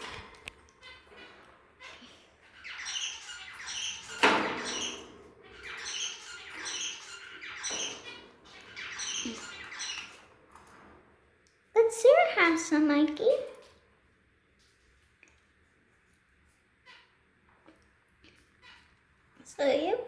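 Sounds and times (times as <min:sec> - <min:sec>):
budgies squawking: 0:00.8 - 0:10.3.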